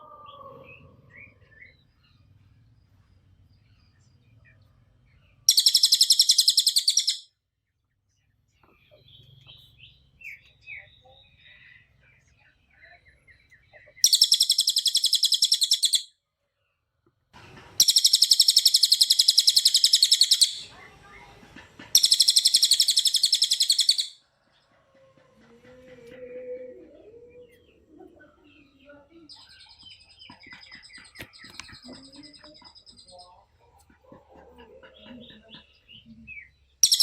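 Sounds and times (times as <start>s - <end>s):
songbird trilling rapidly: 5.5s - 7.3s, 14.0s - 16.1s, 17.8s - 20.7s, 21.9s - 24.2s, 35.9s - 37.0s.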